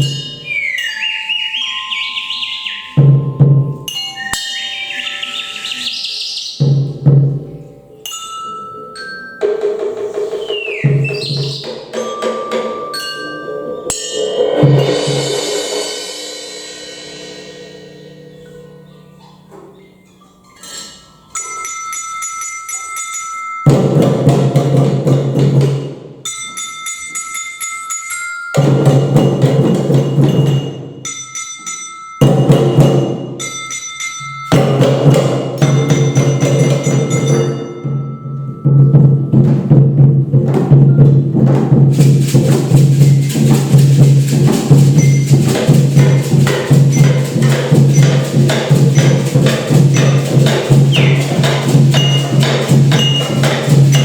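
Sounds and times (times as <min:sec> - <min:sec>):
bell-like pitched tones: 0:00.0 - 0:06.9, 0:07.5 - 0:17.0, 0:17.9 - 0:24.6, 0:26.2 - 0:39.5, 0:43.0 - 0:54.0
dense drumming: 0:34.6 - 0:54.0.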